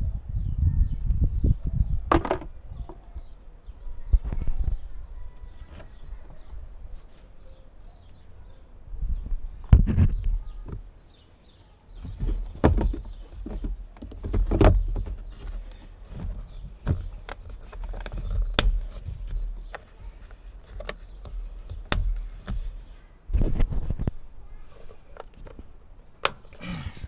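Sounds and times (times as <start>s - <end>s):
plastic clicks and knocks: 2.1s - 3.1s, 12.0s - 26.8s.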